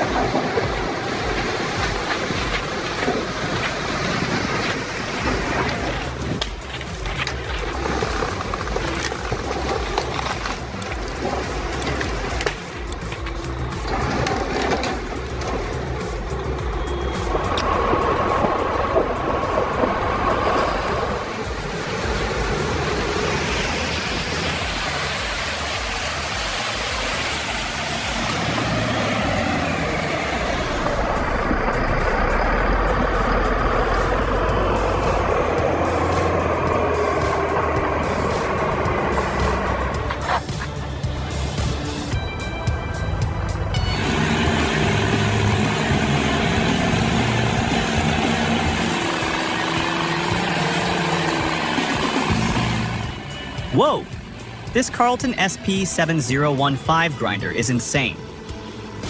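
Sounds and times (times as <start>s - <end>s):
heavy machinery engine running: 0.0s - 59.0s
heavy machine rumbling: 27.6s - 54.8s.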